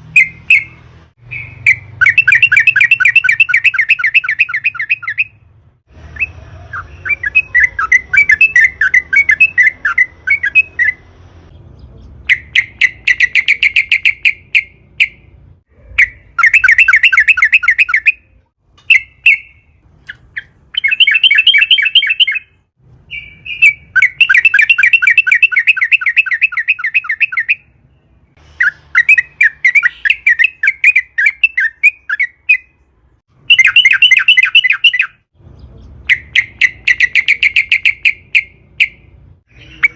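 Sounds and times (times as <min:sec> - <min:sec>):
bulbul singing rattling chirps: 0:00.1 - 0:05.4, 0:12.2 - 0:15.3, 0:18.8 - 0:27.7, 0:33.4 - 0:35.3, 0:36.0 - 0:39.1.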